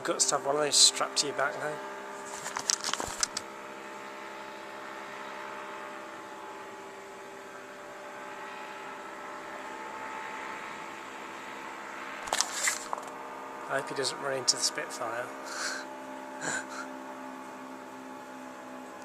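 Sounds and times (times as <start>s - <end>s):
small engine droning: 0.0s - 19.0s
sharp clicks: 2.5s - 3.4s.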